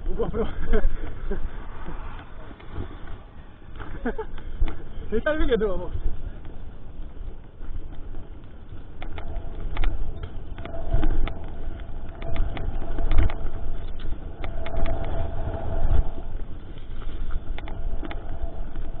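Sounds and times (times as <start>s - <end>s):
low rumble of tyres and wind: 0.0s - 19.0s
thin steady whine: 0.0s - 19.0s
rapid rattling clicks from bike: 3.8s - 15.3s.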